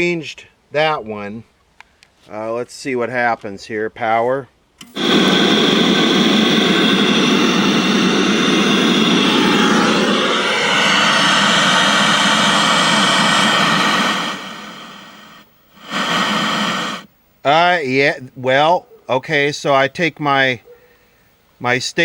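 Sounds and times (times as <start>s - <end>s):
television static hiss: 4.8s - 20.6s, 21.4s - 22.0s.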